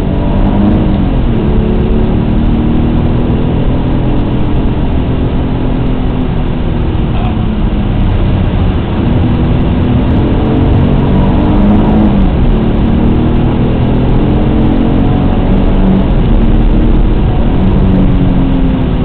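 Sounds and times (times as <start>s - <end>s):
car engine under load: 0.0s - 19.0s
road and wind noise: 0.0s - 19.0s.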